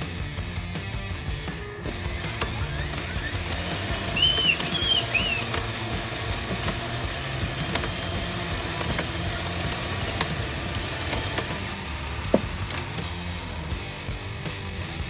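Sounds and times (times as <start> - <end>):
toy machine engine drone: 1.6 - 11.8, 12.6 - 13.1.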